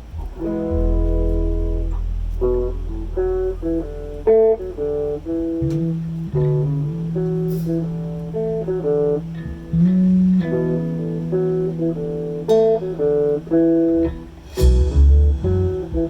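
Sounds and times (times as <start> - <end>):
sustained bass notes: 0.0 - 8.1, 14.0 - 16.0
plucked guitar melody: 0.0 - 16.0.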